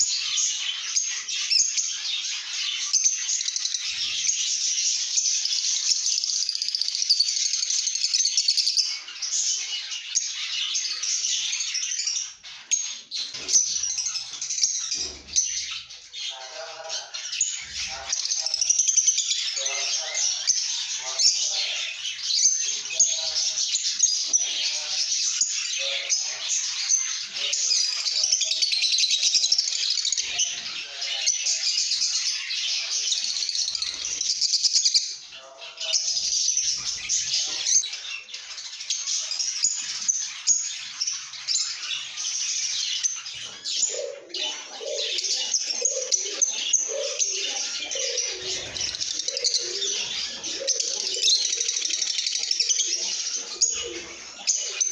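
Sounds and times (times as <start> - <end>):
lovebirds chattering and chirping: 0.0 - 54.9.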